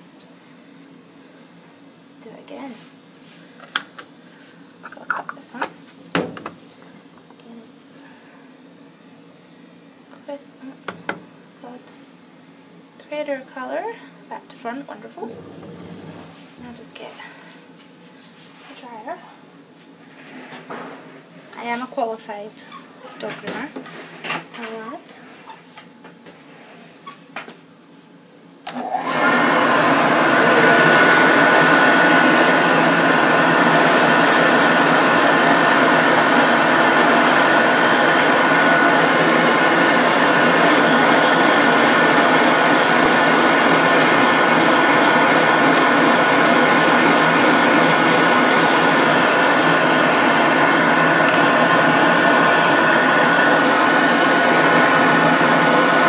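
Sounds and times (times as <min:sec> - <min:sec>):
dog dryer blowing: 0:15.3 - 0:16.5, 0:28.7 - 0:56.0.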